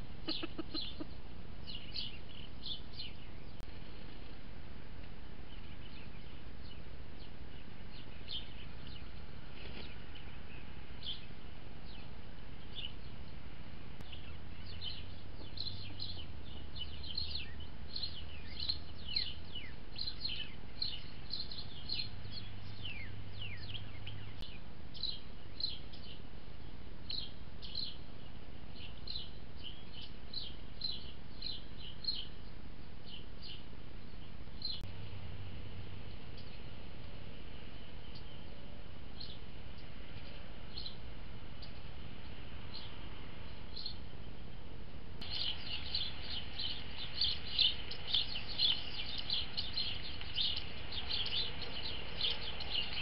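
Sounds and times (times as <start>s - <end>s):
birds chirping: 0.0s - 4.4s, 5.0s - 53.0s
steady background hiss: 0.0s - 53.0s.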